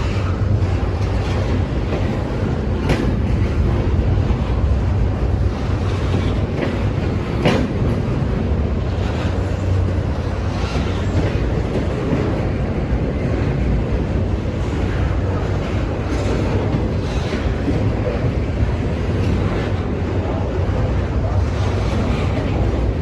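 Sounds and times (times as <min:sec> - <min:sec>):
wheels clacking over rail joints: 0:00.0 - 0:20.5
freight train cars rumbling: 0:00.0 - 0:23.0.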